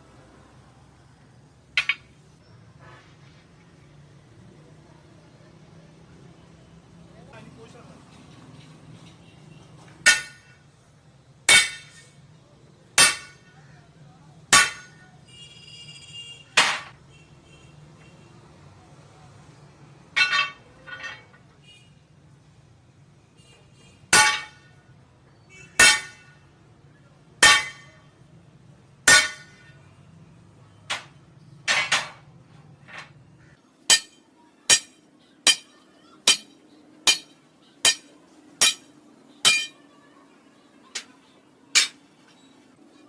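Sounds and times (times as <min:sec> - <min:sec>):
hammer striking metal: 0:10.0 - 0:10.6, 0:11.5 - 0:12.1, 0:13.0 - 0:13.5, 0:14.5 - 0:15.0, 0:20.2 - 0:21.3, 0:24.1 - 0:24.7, 0:25.8 - 0:26.4, 0:27.4 - 0:28.0, 0:29.1 - 0:29.7, 0:33.9 - 0:39.9, 0:40.9 - 0:42.1.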